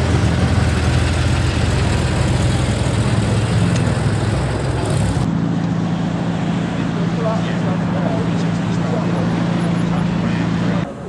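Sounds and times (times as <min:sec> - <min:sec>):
car engine idling: 0:00.0 - 0:05.3.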